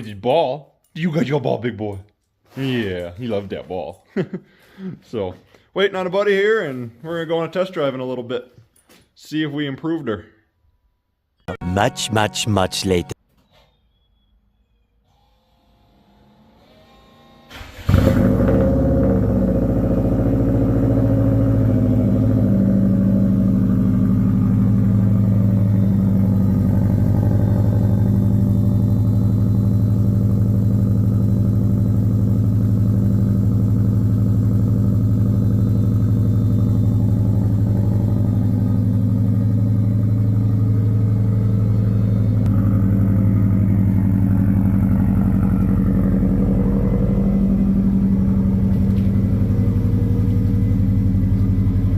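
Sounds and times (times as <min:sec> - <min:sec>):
car engine starting and idling: 0:17.5 - 0:51.9.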